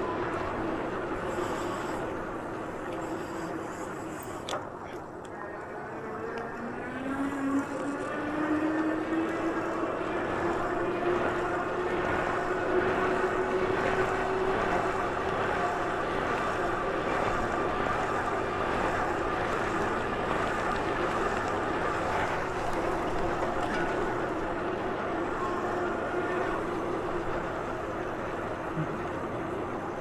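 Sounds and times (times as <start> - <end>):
droning whine: 0.0 - 4.6
bike running and wind noise: 6.0 - 30.0.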